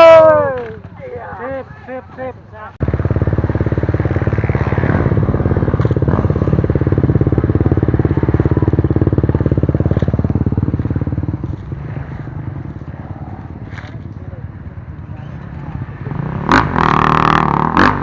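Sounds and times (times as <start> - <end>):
motorcycle engine running: 2.8 - 18.0.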